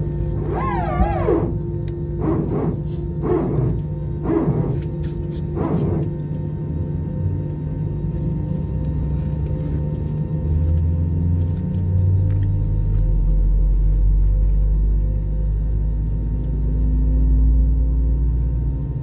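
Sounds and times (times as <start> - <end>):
cabin air hum: 0.0 - 6.3
jet engine starting rumble: 0.0 - 6.4.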